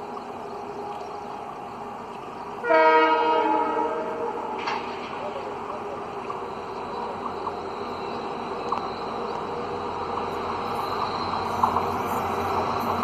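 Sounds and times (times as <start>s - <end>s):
diesel locomotive engine: 0.0s - 13.0s
train wheel squeaks: 6.3s - 13.0s.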